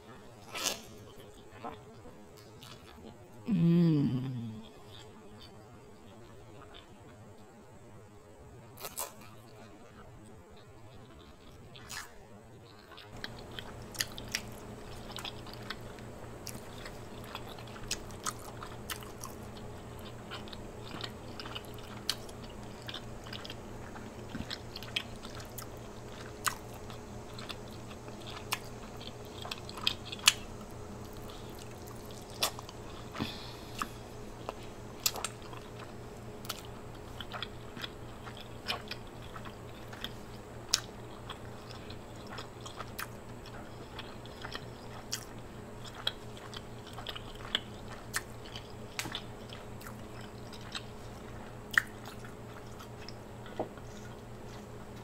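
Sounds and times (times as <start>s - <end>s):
steady low hum: 0.0s - 55.0s
wet smacking chewing: 12.7s - 55.0s.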